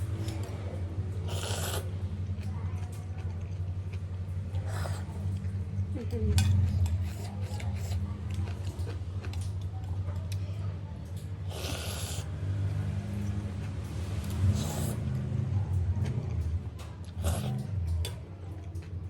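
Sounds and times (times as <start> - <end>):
chewing: 0.0 - 19.0
slurping noodle soup: 1.2 - 2.1, 4.5 - 5.4, 6.7 - 8.5, 11.4 - 13.4, 14.2 - 15.3, 17.0 - 18.1.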